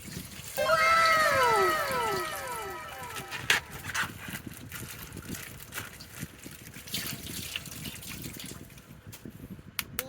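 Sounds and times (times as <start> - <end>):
water trickling and dripping: 4.7 - 8.9.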